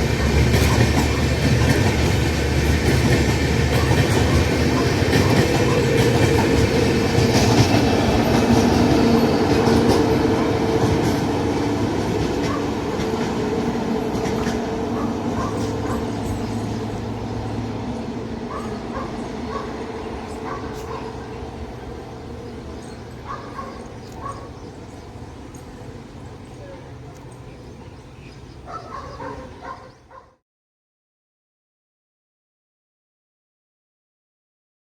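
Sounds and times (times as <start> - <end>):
train wheels clattering over rails: 0.0 - 30.0
dog barking: 3.7 - 6.2, 12.4 - 13.1, 14.9 - 16.2, 18.4 - 21.4, 23.2 - 24.6, 26.6 - 27.3, 28.7 - 30.4.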